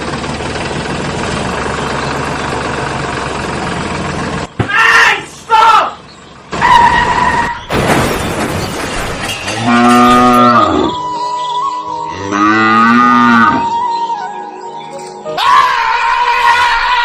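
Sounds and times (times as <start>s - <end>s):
cow mooing: 9.5s - 11.0s, 12.1s - 13.7s.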